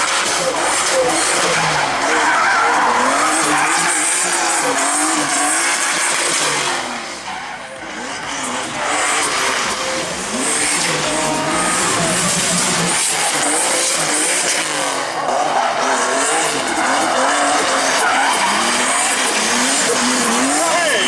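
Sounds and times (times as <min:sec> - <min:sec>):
car engine revving: 0:00.0 - 0:21.0
tyres squealing: 0:00.9 - 0:05.9, 0:09.9 - 0:14.2, 0:15.7 - 0:21.0.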